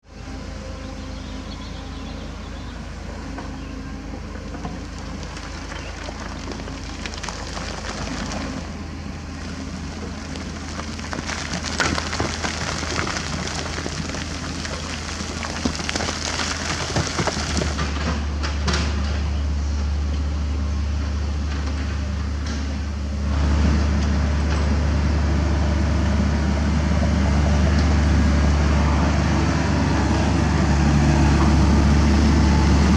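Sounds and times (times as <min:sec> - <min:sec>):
excavator diesel engine running: 0:00.1 - 0:32.9
rock crunching and clattering: 0:04.8 - 0:08.7, 0:09.3 - 0:19.0.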